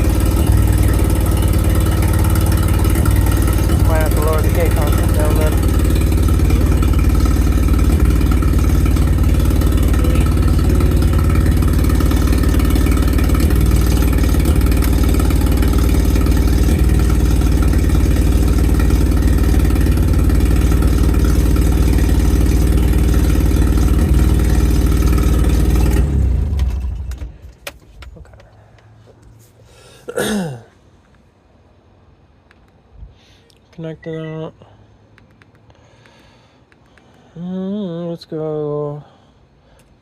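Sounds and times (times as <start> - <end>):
engine shutting off: 0.0 - 30.4
car engine idling: 0.0 - 32.7.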